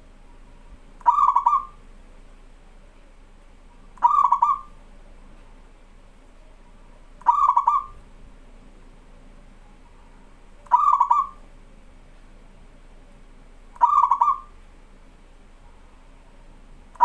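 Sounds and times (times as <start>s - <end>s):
dove cooing: 1.0s - 1.8s, 3.9s - 4.8s, 7.2s - 8.0s, 10.6s - 11.5s, 13.8s - 14.6s.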